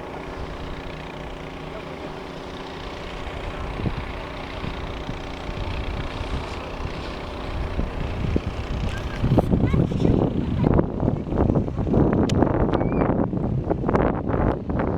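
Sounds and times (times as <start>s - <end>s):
outboard motor running: 0.0s - 14.9s
rough low rumble with thumps: 3.4s - 14.9s.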